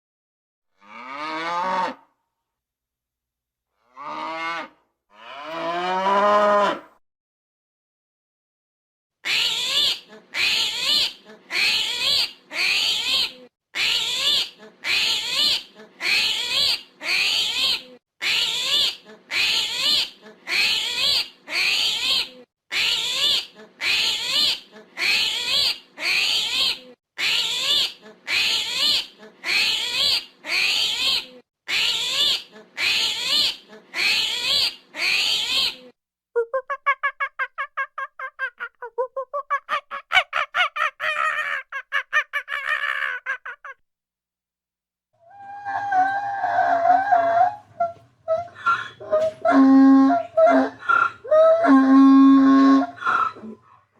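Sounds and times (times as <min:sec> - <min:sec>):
animal high-pitched calls: 0:09.2 - 0:43.8, 0:45.2 - 0:53.8
fast-pulsing animal call: 0:36.5 - 0:43.8.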